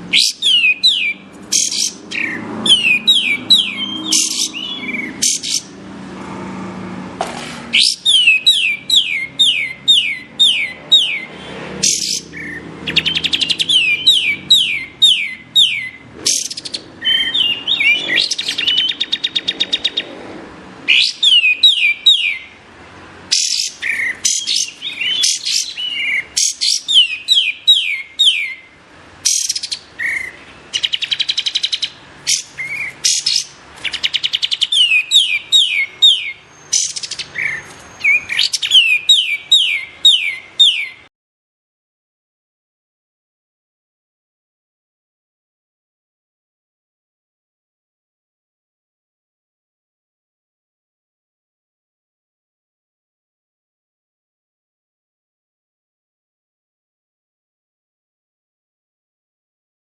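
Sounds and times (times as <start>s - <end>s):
bird whistles and trills: 0.1s - 5.8s, 7.7s - 20.1s, 20.9s - 22.5s, 23.3s - 41.1s.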